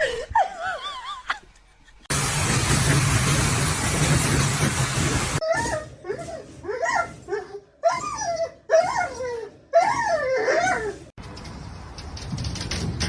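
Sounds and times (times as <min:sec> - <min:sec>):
dog wavering calls: 0:05.4 - 0:11.1.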